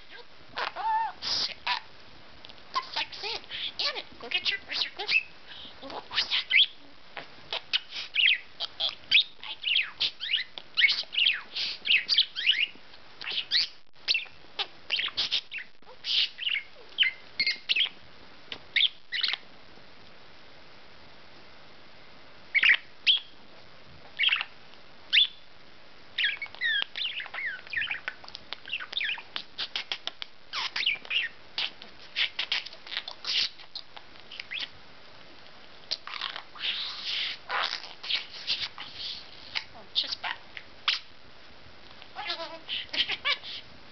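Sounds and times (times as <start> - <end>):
budgerigar chattering and warbling: 2.8 - 6.8, 7.5 - 18.0, 26.2 - 34.7, 35.9 - 41.1, 42.2 - 43.7.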